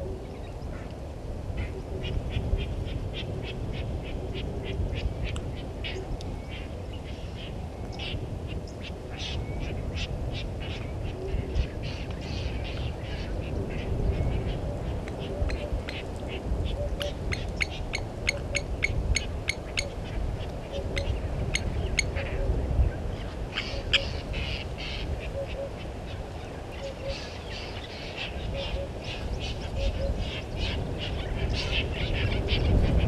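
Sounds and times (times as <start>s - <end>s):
birds chattering calls: 1.6s - 33.0s.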